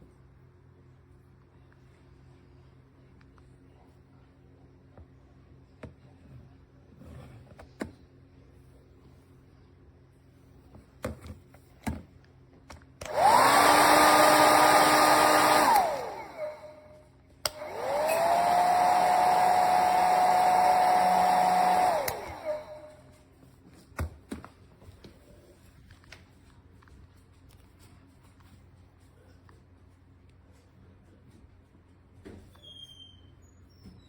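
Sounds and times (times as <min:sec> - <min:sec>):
hair dryer blowing: 0:13.0 - 0:23.1.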